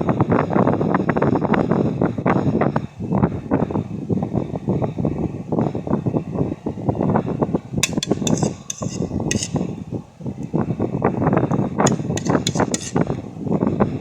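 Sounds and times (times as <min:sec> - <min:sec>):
constant low rumble: 0:00.0 - 0:14.0
spoon clinking against dish: 0:07.8 - 0:09.7, 0:11.8 - 0:13.2.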